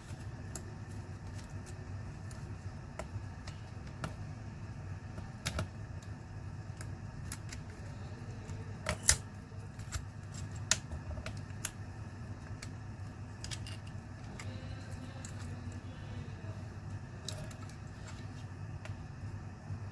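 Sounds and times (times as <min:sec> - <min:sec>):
steady low hum: 0:00.0 - 0:19.9
tools and laptop parts clicking: 0:06.7 - 0:11.8, 0:12.4 - 0:15.5.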